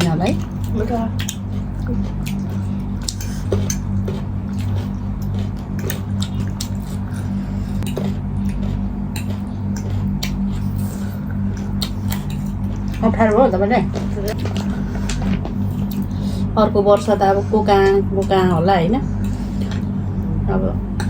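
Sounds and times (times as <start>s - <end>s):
wet chewing: 0.0s - 16.3s
steady low hum: 0.0s - 21.0s.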